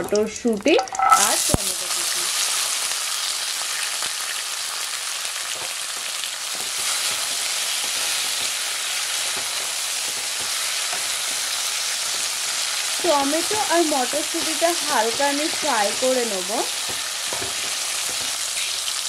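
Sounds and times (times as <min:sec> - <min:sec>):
vegetables sizzling in oil: 0:00.0 - 0:19.0
wooden spatula scraping and tapping: 0:06.6 - 0:11.3, 0:16.8 - 0:18.7.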